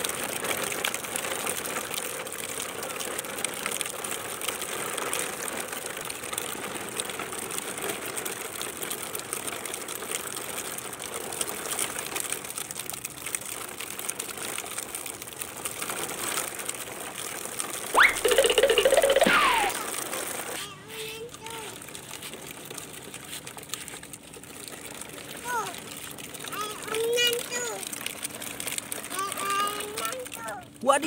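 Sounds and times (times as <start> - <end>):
toy truck wheels rattling on concrete: 14.4 - 25.7
high-pitched rising sweep: 18.0 - 19.8.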